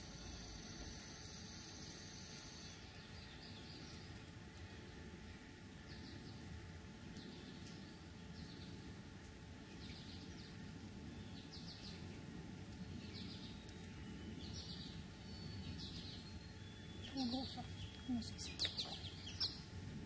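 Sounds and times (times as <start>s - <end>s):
songbird chirping: 0.0s - 5.1s, 9.5s - 19.8s
faint low rumble: 0.0s - 20.0s.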